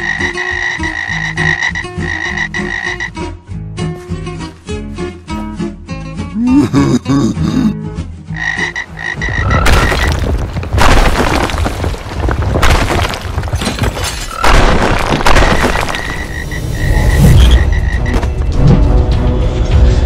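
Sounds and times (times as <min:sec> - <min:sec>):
cartoon frog croaks: 0:00.0 - 0:03.2, 0:06.4 - 0:09.8
stone statues shattering: 0:09.6 - 0:16.6.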